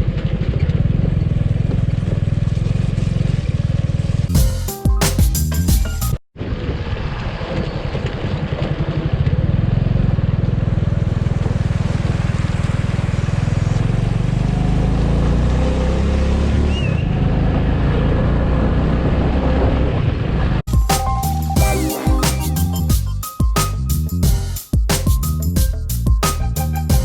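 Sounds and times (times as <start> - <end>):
motorcycle engine running: 0.0 - 4.6, 8.6 - 15.5
wind and road noise: 6.4 - 20.6.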